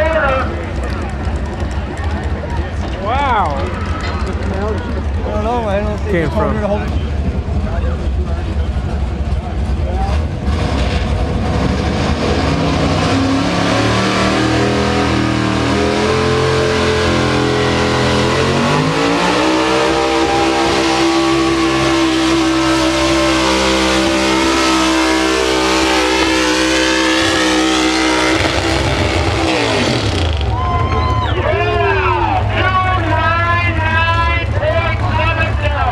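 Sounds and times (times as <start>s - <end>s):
truck engine under load: 0.0s - 35.9s.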